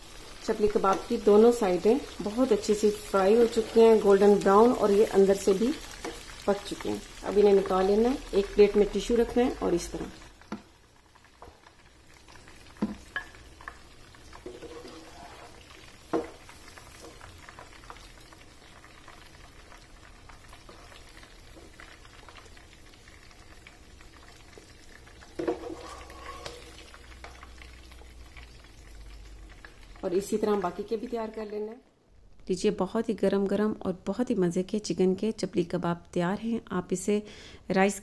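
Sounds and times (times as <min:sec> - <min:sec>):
food sizzling in oil: 0:00.0 - 0:31.8
metal spatula scraping pan: 0:14.3 - 0:16.3, 0:25.4 - 0:27.4.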